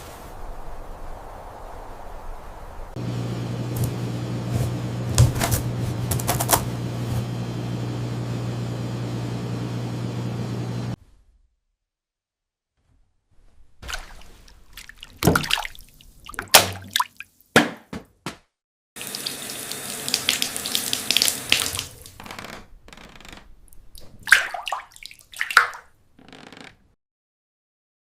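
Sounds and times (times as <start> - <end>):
water splashing and running: 13.8 - 17.3, 19.0 - 22.2, 24.0 - 25.9.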